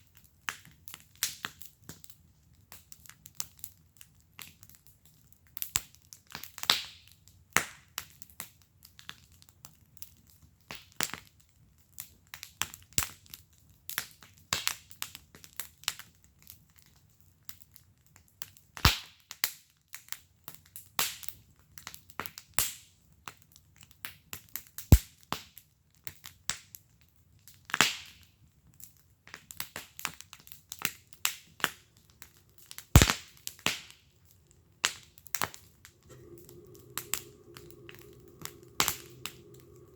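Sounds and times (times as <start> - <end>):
wood fire crackling and popping: 27.1 - 39.9.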